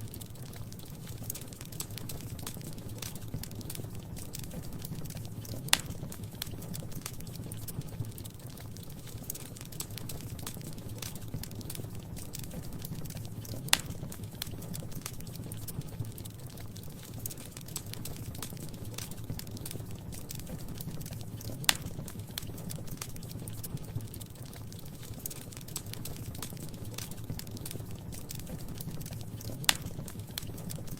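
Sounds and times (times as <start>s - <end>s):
wood fire crackling: 0.0s - 30.9s
sharp pops of fire: 0.1s - 30.9s.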